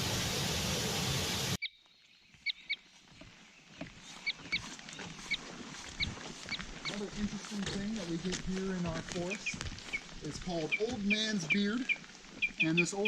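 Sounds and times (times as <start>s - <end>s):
loud rushing hiss: 0.0s - 1.6s
faint forest background: 0.0s - 13.0s
bird chirping: 1.6s - 13.0s.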